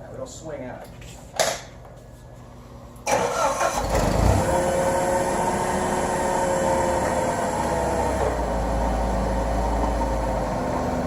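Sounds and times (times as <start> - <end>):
forklift engine starting and running: 3.0 - 11.0.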